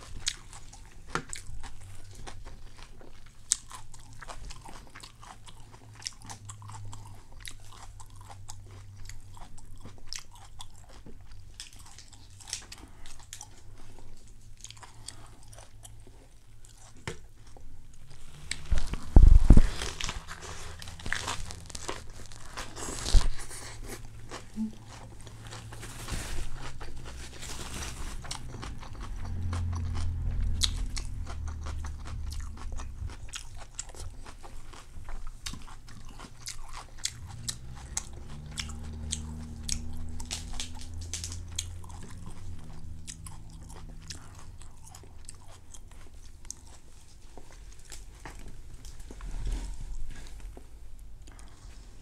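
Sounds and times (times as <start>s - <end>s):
crisp crunching and chewing: 0.0s - 50.6s, 51.2s - 51.8s.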